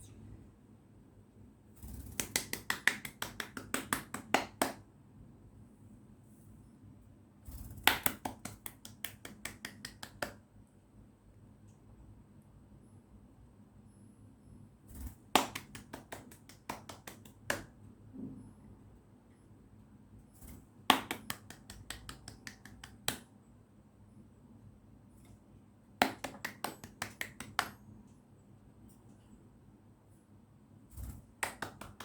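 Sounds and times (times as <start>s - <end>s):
hand clapping: 2.0s - 4.8s, 7.8s - 10.4s, 15.3s - 17.7s, 20.9s - 23.3s, 26.0s - 27.8s, 31.3s - 32.0s.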